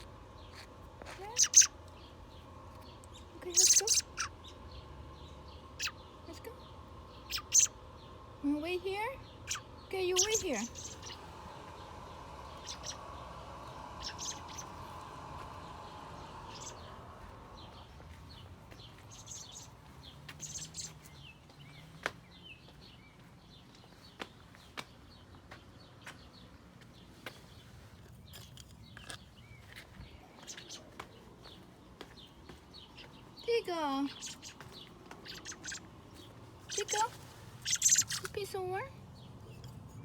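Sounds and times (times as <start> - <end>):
steady hum: 0.0 - 21.0
bird chirping: 1.2 - 26.5, 27.4 - 40.0.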